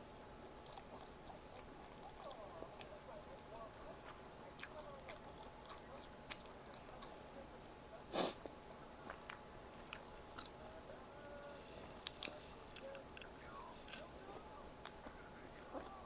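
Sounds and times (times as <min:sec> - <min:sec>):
chewing food: 0:00.6 - 0:07.4, 0:09.0 - 0:10.8, 0:11.8 - 0:16.0.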